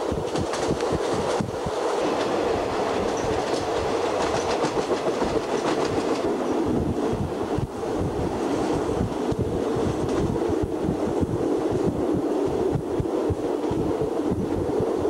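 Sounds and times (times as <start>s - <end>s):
train rumble: 0.0s - 15.0s
wheels clacking over rail joints: 0.2s - 6.6s.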